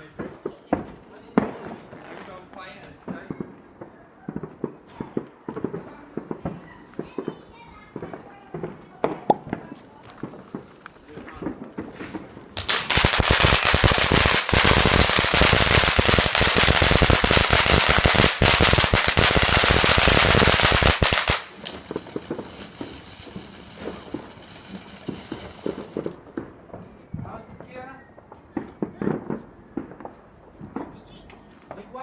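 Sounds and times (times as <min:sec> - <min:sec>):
firecrackers banging: 0:03.1 - 0:26.8
faint pops and crackles: 0:07.9 - 0:26.9.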